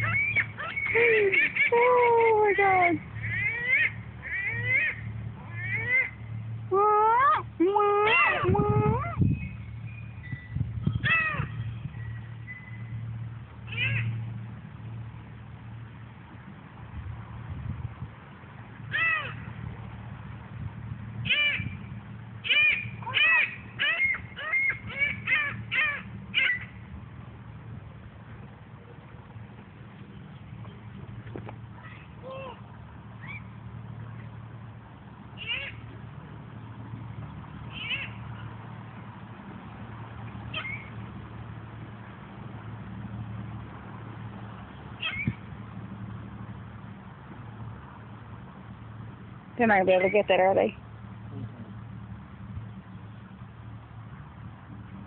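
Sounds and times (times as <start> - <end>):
seagull calling: 0.0 - 9.6, 10.3 - 11.8, 13.6 - 14.2, 18.9 - 19.4, 21.2 - 21.8, 22.4 - 26.8, 31.7 - 33.6, 35.4 - 35.9, 37.7 - 38.6, 40.5 - 41.0, 45.0 - 45.4
gulls crying: 0.0 - 9.8, 22.4 - 26.9, 31.7 - 34.3, 35.3 - 36.0, 37.6 - 38.8, 40.4 - 41.0, 45.0 - 45.6.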